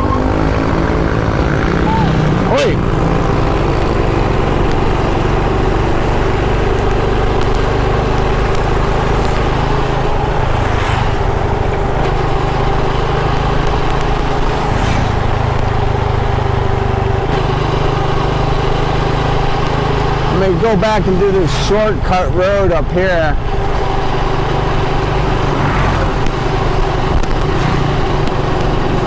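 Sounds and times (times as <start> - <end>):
motorcycle engine cruising: 0.0 - 29.0
wind and road noise: 0.0 - 29.0.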